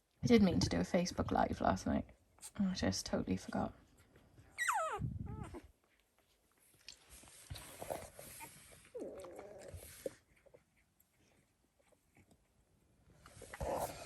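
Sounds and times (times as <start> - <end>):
puppy squealing and whimpering: 4.5 - 5.8, 8.0 - 11.0.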